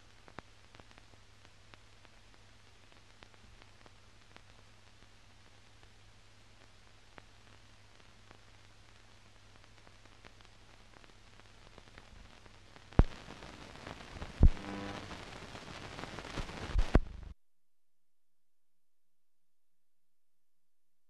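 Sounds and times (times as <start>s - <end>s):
film hiss and crackle: 0.0s - 17.4s
steady hum: 12.8s - 17.4s
sharp pops: 12.9s - 15.3s, 16.2s - 17.2s
brief buzz: 14.4s - 15.1s.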